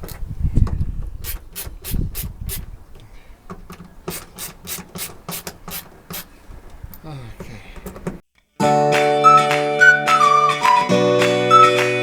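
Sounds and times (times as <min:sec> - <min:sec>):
screwdriver rasping strokes: 0:01.2 - 0:02.7, 0:04.1 - 0:06.4.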